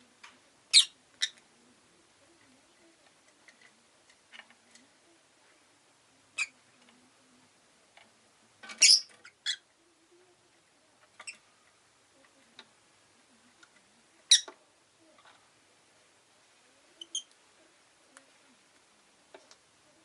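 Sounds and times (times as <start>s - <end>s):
lovebird chirping: 0.7s - 1.4s, 6.4s - 6.6s, 8.7s - 9.7s, 14.2s - 14.6s, 17.0s - 17.3s.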